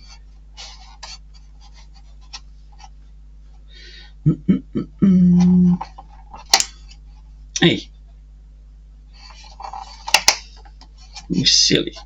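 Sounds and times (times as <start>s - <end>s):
man humming: 4.2s - 5.9s.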